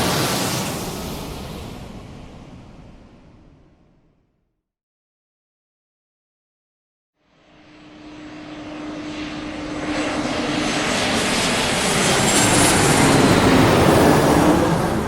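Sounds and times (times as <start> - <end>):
aircraft engine hum: 7.2 - 15.0.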